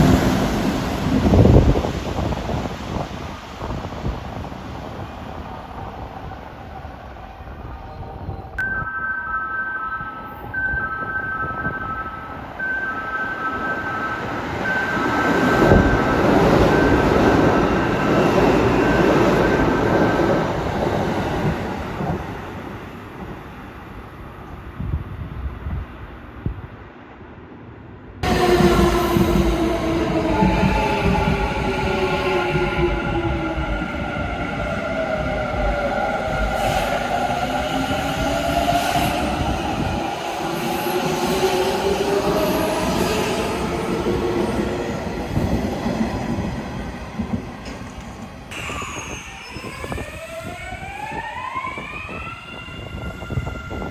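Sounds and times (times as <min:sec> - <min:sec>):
electric train rumbling past: 0:00.0 - 0:08.7, 0:10.0 - 0:53.9
two-note electronic bell: 0:08.6 - 0:14.3
train rail rumble: 0:28.2 - 0:51.2.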